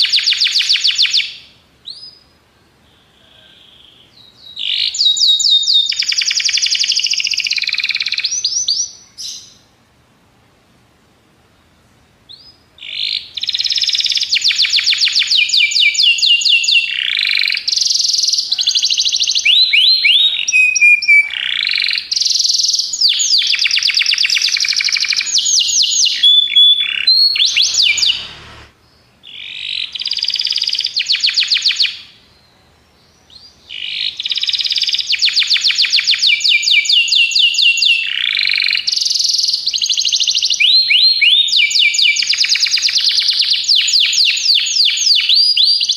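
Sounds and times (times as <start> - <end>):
canary singing trills: 0.0 - 9.7, 12.3 - 45.9.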